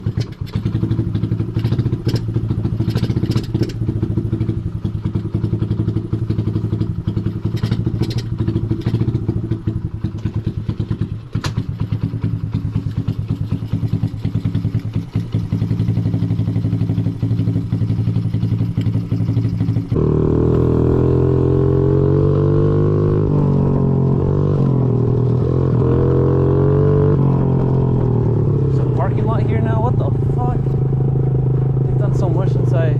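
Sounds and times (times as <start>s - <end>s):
small motorbike engine running: 0.0s - 21.6s.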